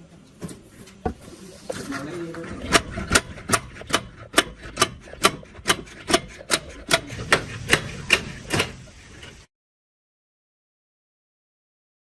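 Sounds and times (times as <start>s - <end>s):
hand tool striking metal: 2.7s - 8.8s.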